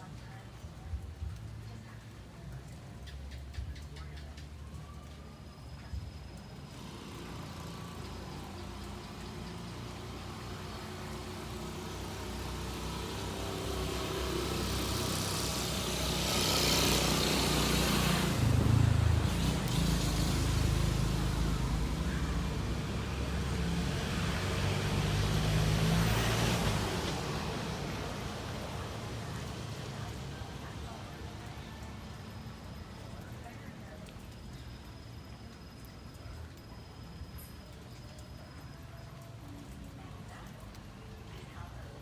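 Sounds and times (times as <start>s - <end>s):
motor vehicles passing: 6.6s - 34.4s.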